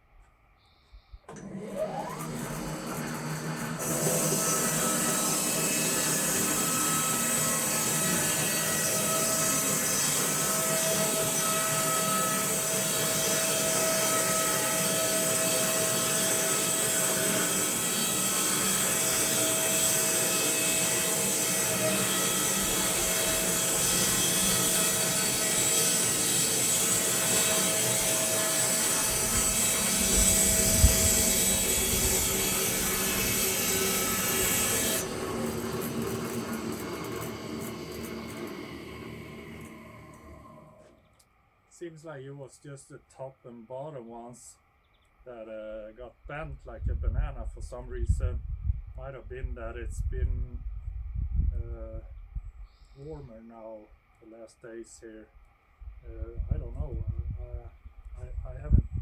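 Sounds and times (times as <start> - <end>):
bandsaw sawing through log: 1.3 - 40.8.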